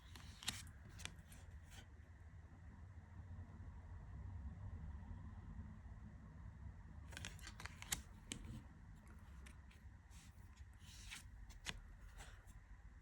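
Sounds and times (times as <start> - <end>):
cards clicking and scraping: 0.0 - 1.8, 7.1 - 12.6.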